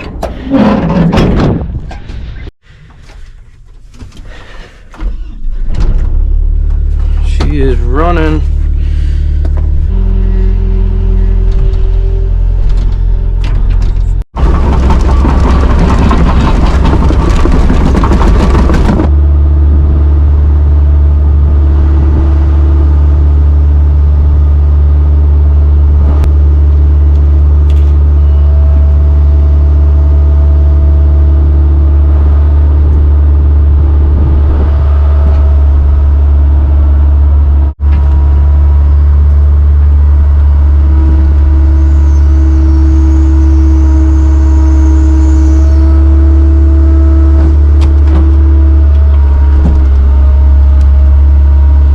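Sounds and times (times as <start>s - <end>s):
farm machine engine droning: 0.0s - 1.1s, 6.0s - 51.9s.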